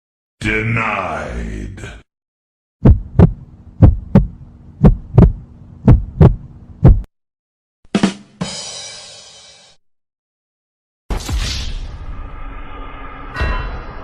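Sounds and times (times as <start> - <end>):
faint hum: 2.8 - 7.1
heartbeat thumps: 2.8 - 7.1.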